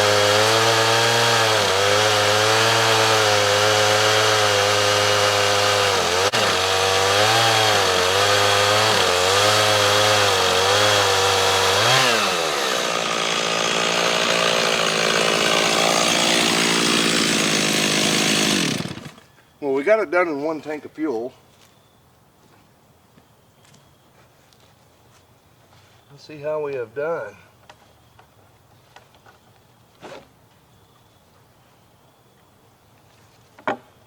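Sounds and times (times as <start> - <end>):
chainsaw cutting wood: 0.0 - 19.3.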